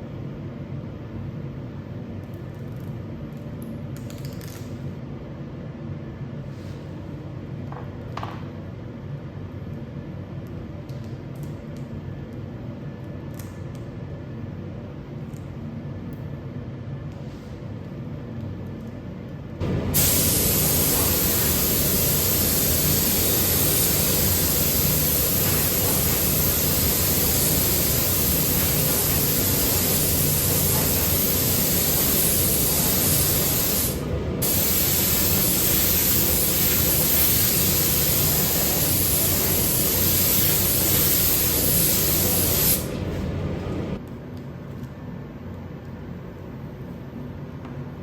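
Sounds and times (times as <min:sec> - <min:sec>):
spray gun hissing: 0:19.6 - 0:43.1.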